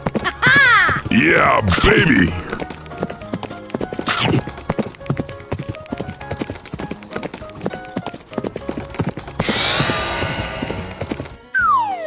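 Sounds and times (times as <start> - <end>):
cartoon background music: 0.0 - 12.0
whoosh: 9.4 - 11.5.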